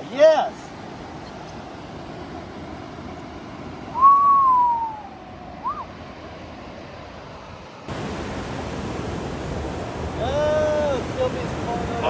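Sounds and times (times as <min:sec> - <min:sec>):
surf: 0:00.0 - 0:12.0
wind: 0:00.0 - 0:12.0
rising-and-falling whistle: 0:03.9 - 0:05.9
whistled note sliding down: 0:04.0 - 0:05.9.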